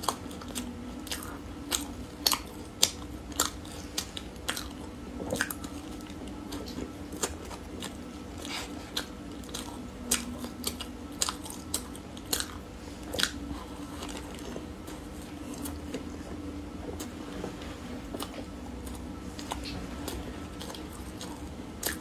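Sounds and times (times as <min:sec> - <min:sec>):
biting and chewing: 0:00.0 - 0:22.0.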